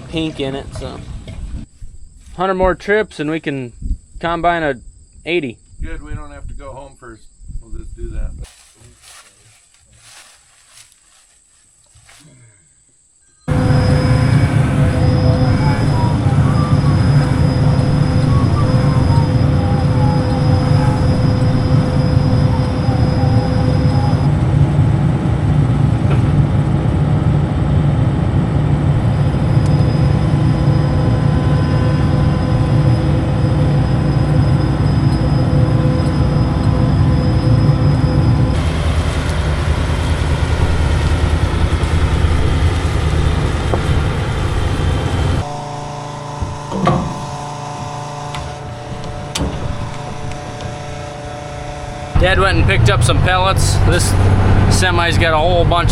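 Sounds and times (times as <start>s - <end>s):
thin steady whine: 7.1s - 55.9s
diesel engine droning: 13.4s - 55.9s.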